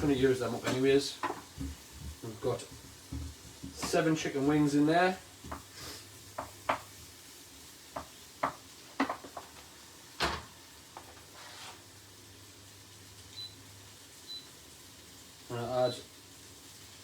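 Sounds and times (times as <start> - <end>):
utensil knocking on cooking pan: 0.0 - 4.6, 5.4 - 7.1, 7.9 - 9.6.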